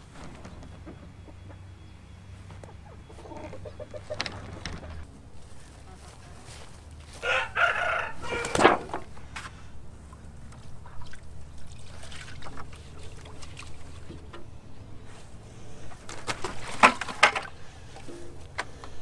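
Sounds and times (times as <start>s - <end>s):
rooster crowing: 7.1s - 9.0s.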